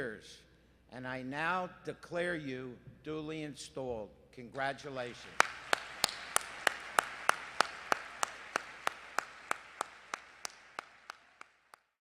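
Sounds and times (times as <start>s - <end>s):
audience applauding: 5.2s - 11.9s
loud hand clapping in even beat: 5.2s - 12.0s.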